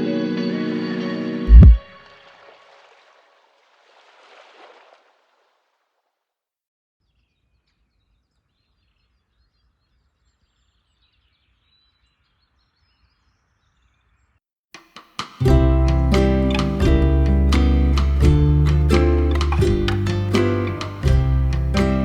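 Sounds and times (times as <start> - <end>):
music: 0.0 - 2.2, 14.8 - 22.0.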